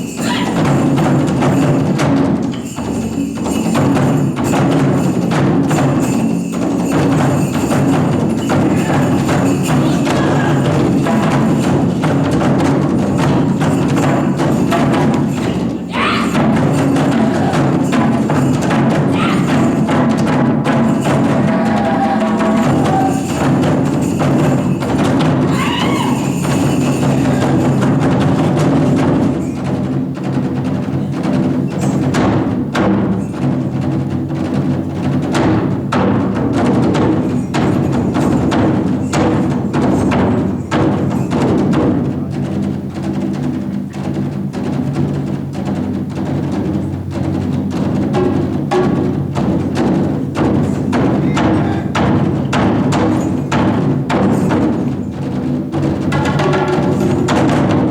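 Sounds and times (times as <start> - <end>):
drum ensemble playing: 0.0 - 57.9.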